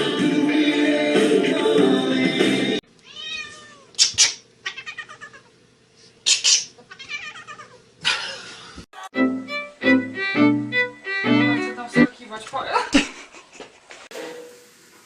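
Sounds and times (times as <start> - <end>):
music: 0.0 - 2.8, 9.1 - 12.1
cat meowing and yowling: 3.1 - 3.9, 4.7 - 5.5, 6.9 - 7.8.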